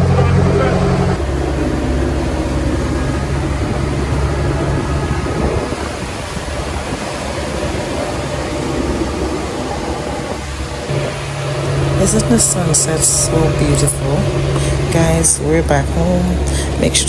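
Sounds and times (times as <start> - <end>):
boat engine humming: 0.0 - 17.0
water rushing: 0.0 - 17.0.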